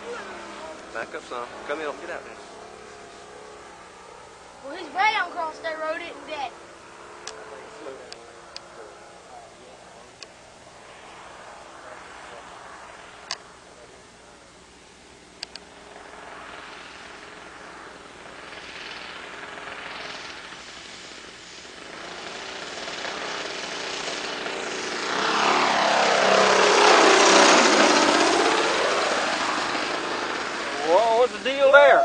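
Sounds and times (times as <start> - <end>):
model plane engine passing: 0.0 - 14.5, 15.2 - 32.0
sharp clicks: 15.4 - 15.7.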